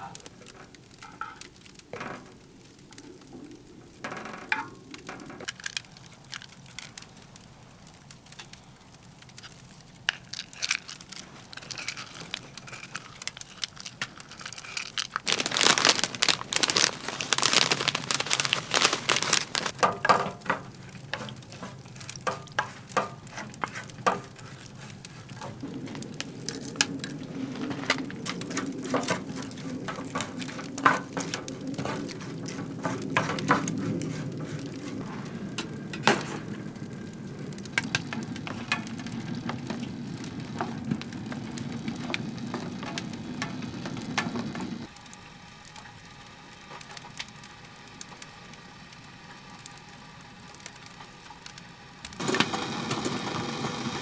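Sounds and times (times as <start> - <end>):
utensil clicking and scraping: 9.3 - 19.8, 21.0 - 36.2.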